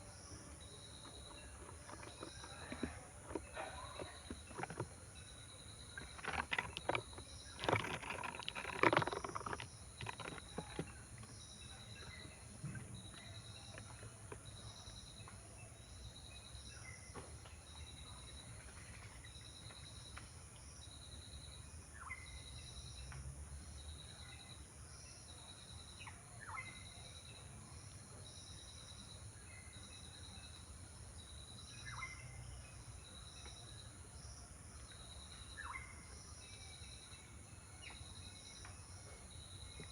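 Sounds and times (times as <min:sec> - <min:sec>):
insect chirping: 0:00.0 - 0:39.9
rustling and clicks: 0:01.0 - 0:05.0, 0:05.9 - 0:11.4.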